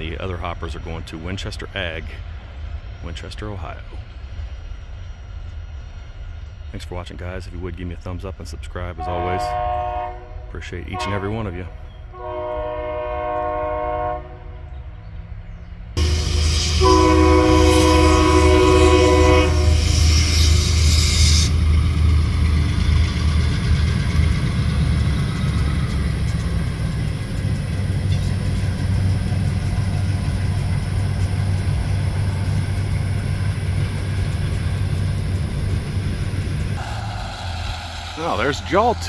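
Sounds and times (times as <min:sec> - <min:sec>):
freight train rumbling: 0:00.0 - 0:39.0
train air horn chord: 0:09.0 - 0:11.4, 0:12.2 - 0:14.7, 0:16.0 - 0:20.5.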